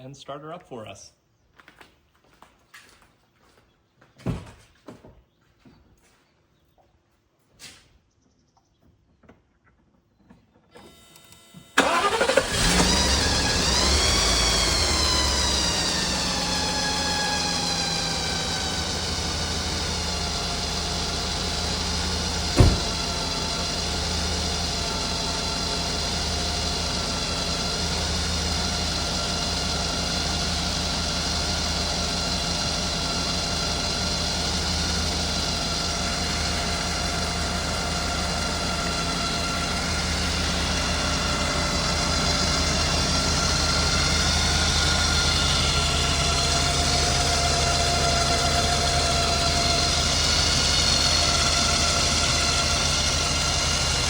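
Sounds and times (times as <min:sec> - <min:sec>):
car engine idling: 0:11.8 - 0:54.0.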